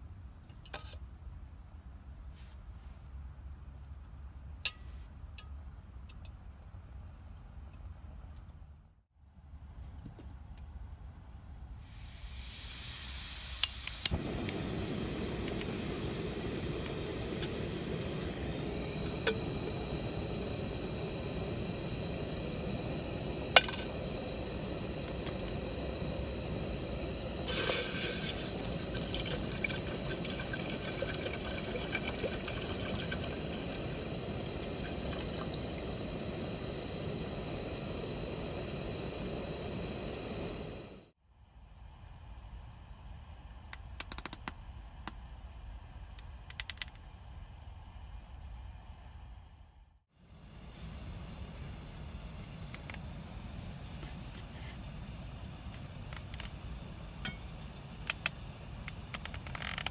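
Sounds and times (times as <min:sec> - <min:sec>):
fire rushing noise: 0:12.0 - 0:41.1.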